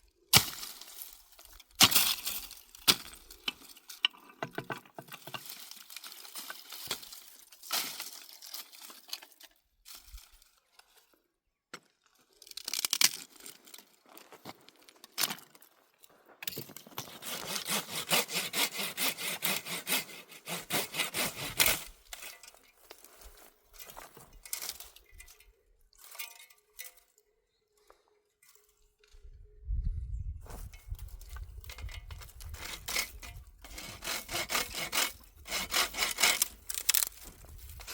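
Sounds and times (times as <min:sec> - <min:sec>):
hand saw cutting wood: 0:17.0 - 0:22.4, 0:31.8 - 0:37.2.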